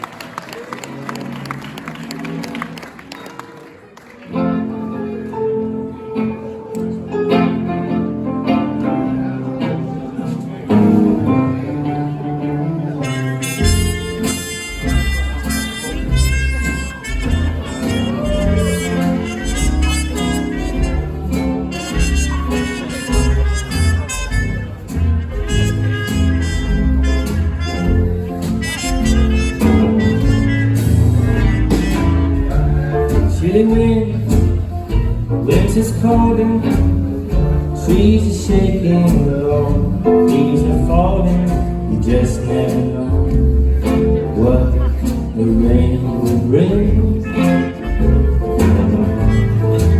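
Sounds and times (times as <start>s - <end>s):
live band playing: 0.0s - 49.9s
steady bass line: 10.7s - 49.9s.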